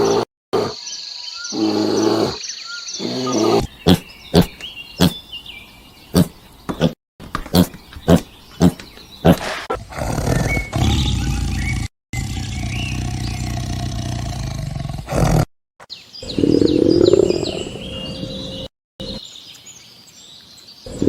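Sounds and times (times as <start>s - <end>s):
farm animal calling: 3.0s - 5.3s.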